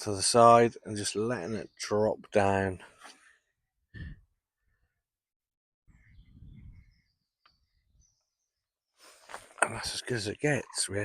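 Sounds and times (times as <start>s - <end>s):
small birds chirping: 0.0s - 4.1s, 5.9s - 11.0s.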